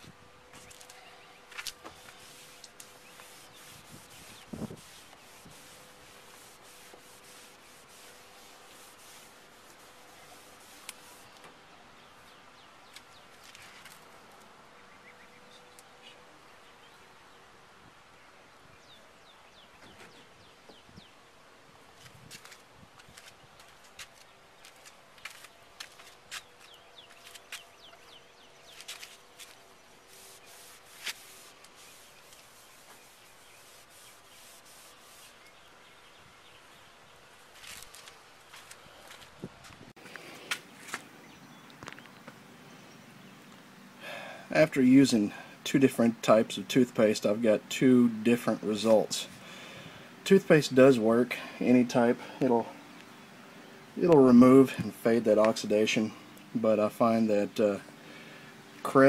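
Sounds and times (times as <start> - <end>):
rubbing on plastic lens: 0.6 - 11.4, 28.7 - 35.5
birds chirping: 10.1 - 21.4, 23.2 - 39.2, 40.0 - 59.0.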